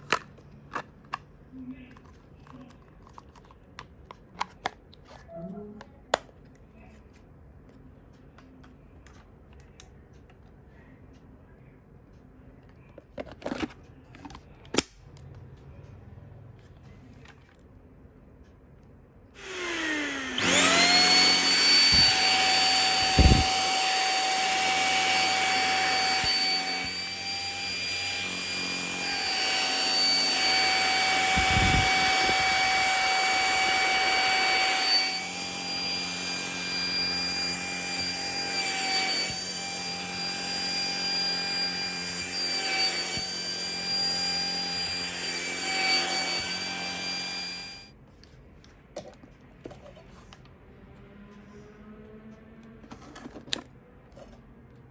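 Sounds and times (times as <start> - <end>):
handheld vacuum motor whine: 19.4 - 47.9.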